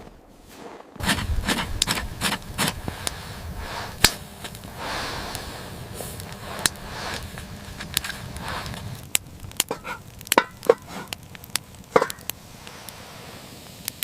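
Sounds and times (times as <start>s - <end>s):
loud crack: 0.0s - 14.0s
soft rushing noise: 11.8s - 14.0s.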